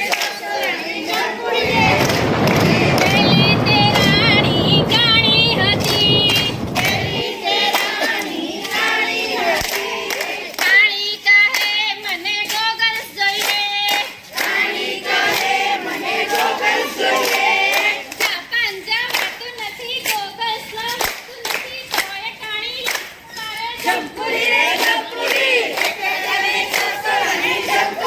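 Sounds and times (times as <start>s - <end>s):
low rushing noise: 1.6s - 7.2s.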